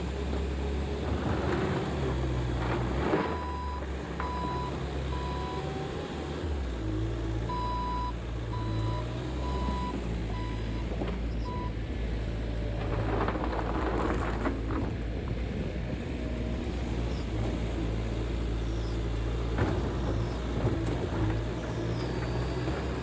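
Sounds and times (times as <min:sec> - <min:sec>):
skid steer engine running: 0:00.0 - 0:23.0
reversing alarm beeping: 0:07.5 - 0:10.9.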